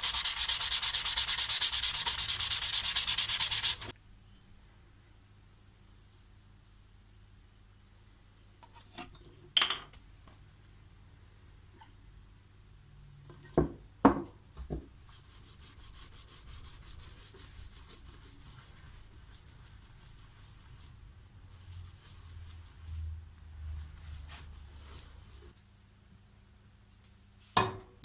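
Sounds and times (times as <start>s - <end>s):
hand sanding strokes: 0.0s - 3.9s, 15.1s - 23.0s, 23.6s - 25.6s.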